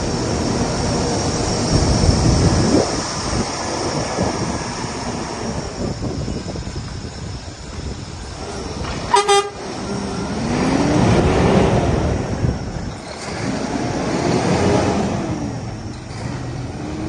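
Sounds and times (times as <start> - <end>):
truck engine revving: 8.4 - 17.0
truck horn toots: 9.1 - 9.6.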